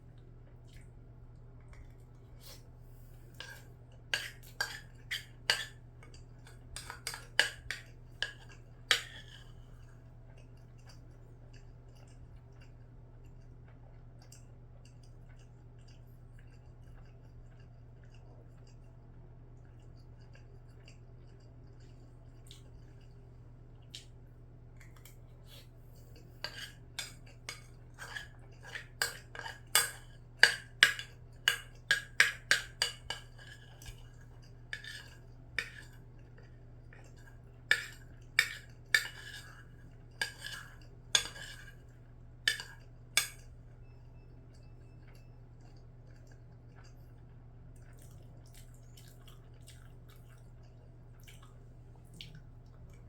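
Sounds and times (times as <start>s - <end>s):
cutlery clinking against a dish: 4.2s - 5.8s, 6.4s - 9.5s, 26.4s - 34.0s, 34.8s - 36.0s, 37.7s - 41.8s, 42.5s - 43.5s.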